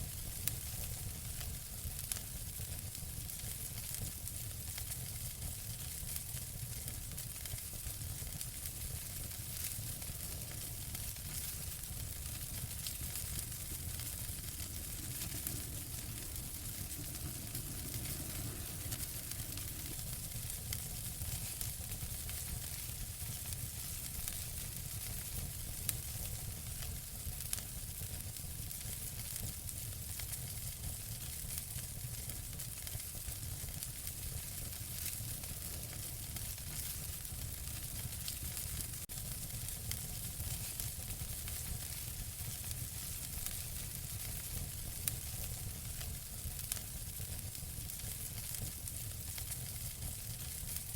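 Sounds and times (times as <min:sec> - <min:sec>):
wood fire crackling: 0:00.0 - 0:50.9
sharp fire pops: 0:08.3 - 0:26.2.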